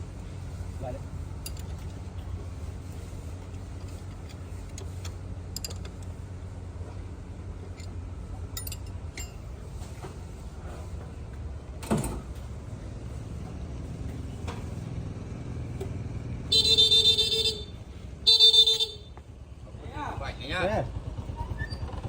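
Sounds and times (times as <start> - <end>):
diesel engine rumbling: 0.0 - 22.0
horn blaring: 16.4 - 19.2.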